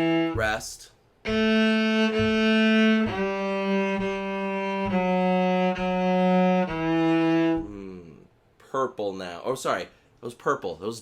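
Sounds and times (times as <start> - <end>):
cello bowing slow notes: 0.0 - 0.6, 1.2 - 8.2.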